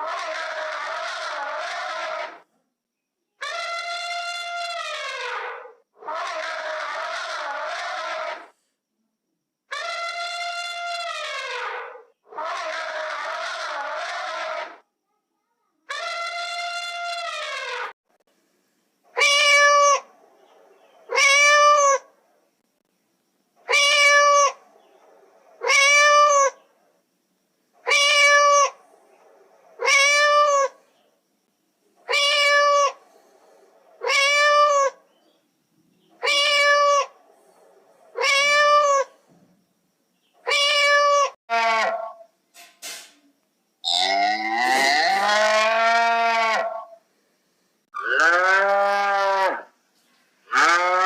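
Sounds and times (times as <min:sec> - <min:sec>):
cat meowing: 0:36.2 - 0:37.1, 0:40.5 - 0:41.4.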